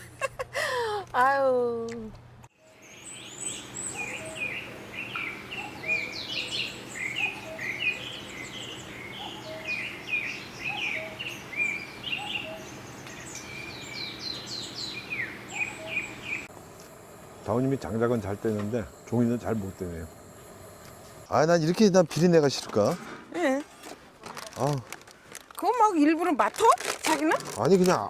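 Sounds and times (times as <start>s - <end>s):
birds chirping and singing: 2.7s - 16.5s
faint low hum: 15.4s - 21.8s.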